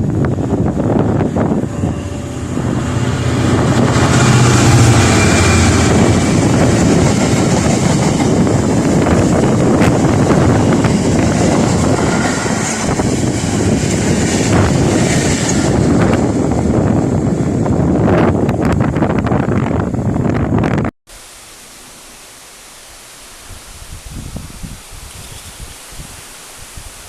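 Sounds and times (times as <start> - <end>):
train passing at speed: 0.0 - 20.7
wind buffeting microphone: 0.0 - 20.9, 23.4 - 27.0.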